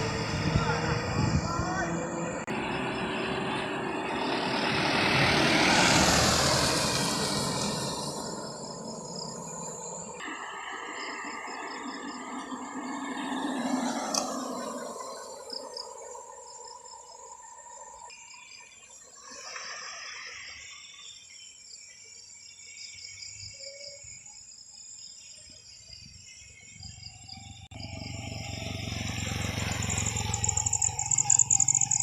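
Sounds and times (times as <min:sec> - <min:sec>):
vehicle passing: 0:00.0 - 0:17.5, 0:27.4 - 0:32.0
insects chirping: 0:00.0 - 0:32.0.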